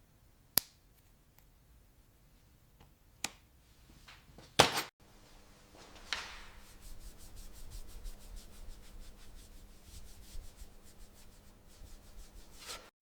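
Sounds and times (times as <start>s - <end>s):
hand sanding strokes: 5.9s - 12.9s.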